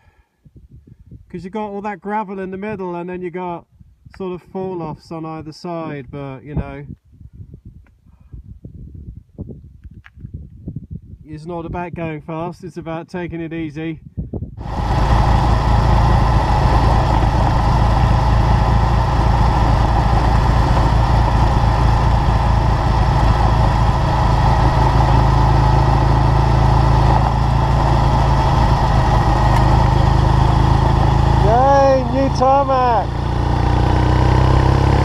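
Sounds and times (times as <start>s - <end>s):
motorcycle engine at low revs: 14.6s - 35.0s.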